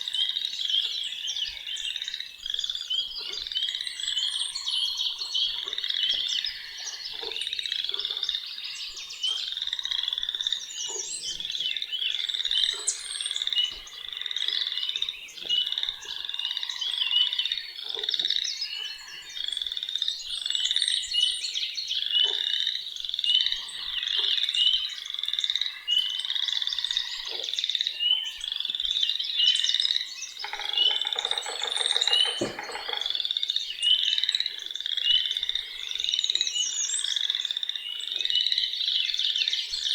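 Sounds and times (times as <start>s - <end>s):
frog chorus: 0.0s - 39.9s
bird chirps: 23.0s - 39.9s.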